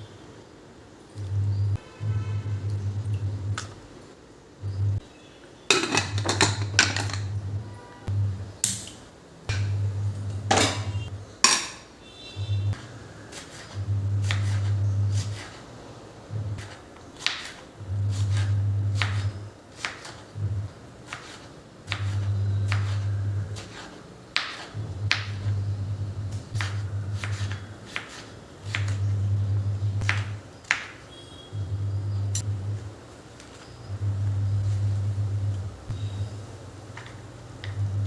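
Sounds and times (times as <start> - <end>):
low hum: 1.1 - 3.8, 4.5 - 5.0, 6.0 - 8.6, 9.5 - 11.2, 13.8 - 15.3, 16.3 - 16.6, 22.1 - 23.6, 24.8 - 27.6, 28.8 - 30.4, 31.5 - 33.0, 33.9 - 36.6, 37.6 - 38.0.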